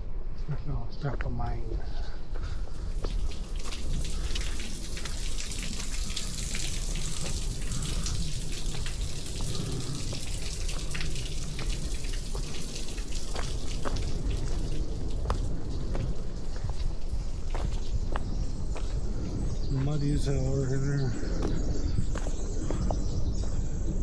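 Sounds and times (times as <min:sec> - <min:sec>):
wind rumble on microphone: 0:00.0 - 0:24.0
footsteps on leaf litter: 0:21.4 - 0:22.9.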